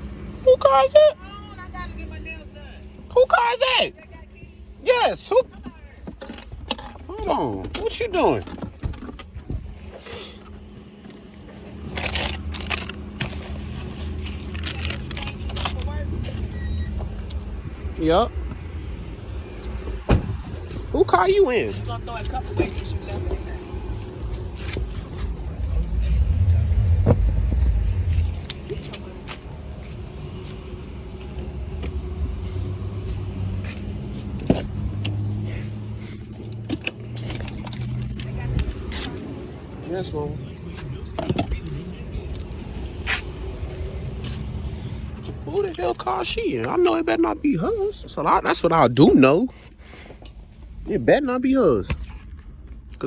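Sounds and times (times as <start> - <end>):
car engine idling: 0.0 - 52.8
crinkling handling noises: 8.6 - 17.4.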